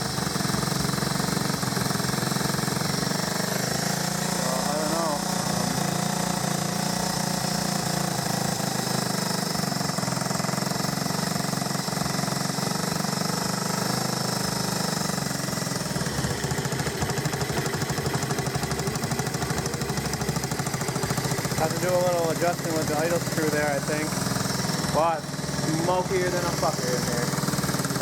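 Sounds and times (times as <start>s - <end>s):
small engine idling: 0.0s - 28.0s.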